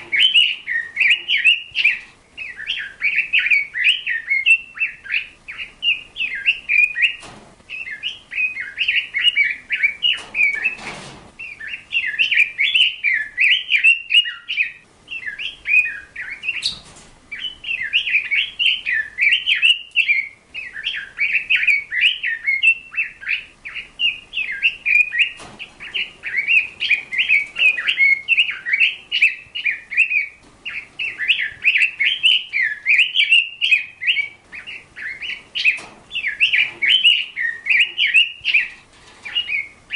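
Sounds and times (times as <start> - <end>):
bird chirping and twittering: 0.0 - 39.9
brief rustles or knocks: 10.2 - 11.3.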